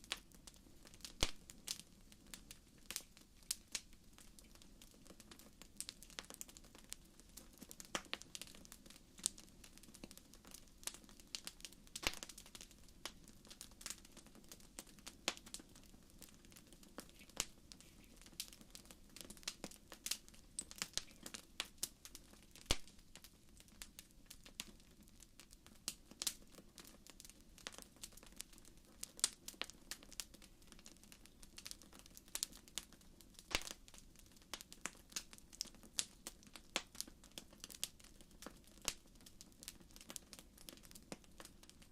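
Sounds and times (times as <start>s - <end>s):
wood fire crackling and popping: 0.0s - 41.9s
low hiss of flames: 14.8s - 23.3s.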